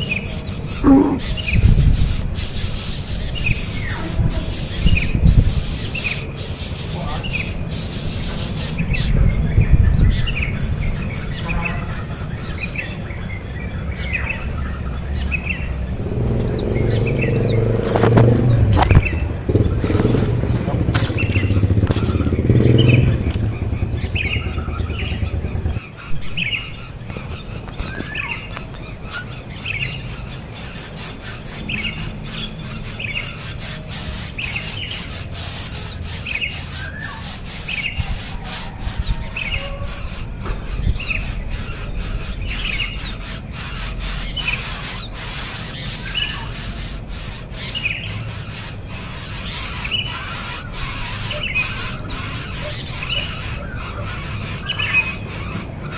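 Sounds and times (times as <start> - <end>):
small bird chirping: 0.0 - 55.9
low motor rumble: 15.1 - 26.6.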